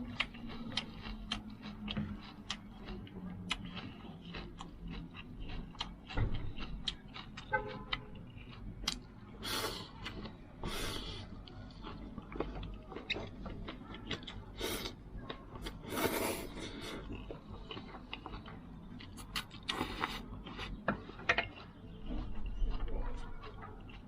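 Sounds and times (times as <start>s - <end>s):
person chewing noodles: 0.0s - 24.0s
noodle slurps: 15.8s - 17.0s.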